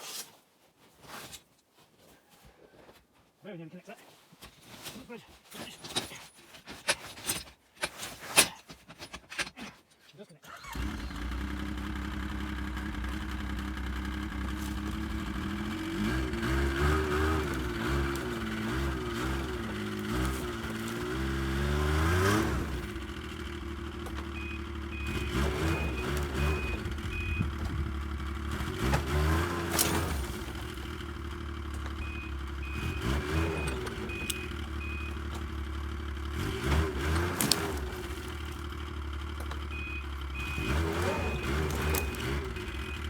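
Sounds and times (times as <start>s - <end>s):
snowmobile engine revving: 10.5s - 43.0s
reverse warning beeps: 24.2s - 27.7s, 32.0s - 35.4s, 39.6s - 43.0s.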